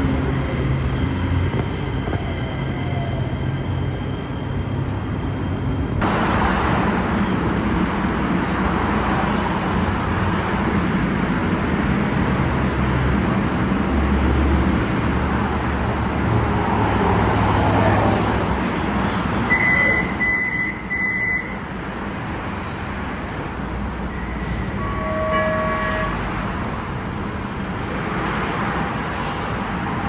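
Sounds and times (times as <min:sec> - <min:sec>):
light-rail train electric whine: 0:00.0 - 0:30.0
street and traffic noise: 0:00.0 - 0:30.0.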